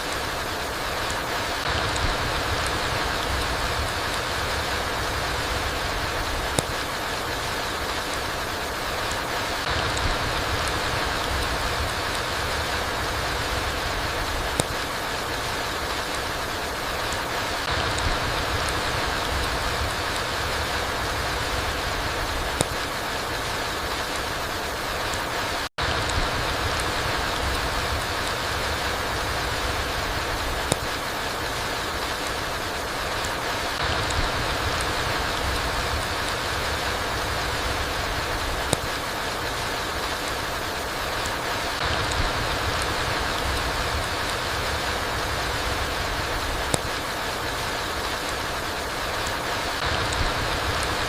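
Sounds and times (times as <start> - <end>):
rain falling through trees: 0.0 - 51.0
faint drop ticks: 1.1 - 6.9, 9.0 - 14.8, 17.1 - 22.9, 25.8 - 31.1, 38.4 - 40.5, 46.0 - 47.0
sharp tick: 6.3 - 6.9, 14.4 - 14.8, 22.5 - 22.9, 30.5 - 31.1, 38.4 - 39.0, 46.5 - 47.0.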